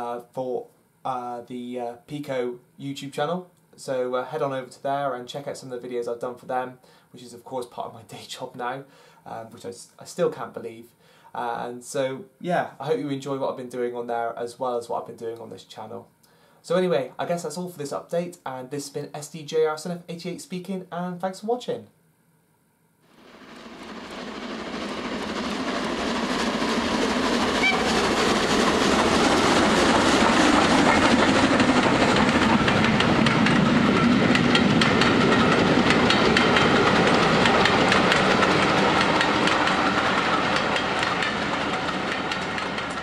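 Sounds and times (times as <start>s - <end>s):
train running on rails: 23.1s - 43.0s.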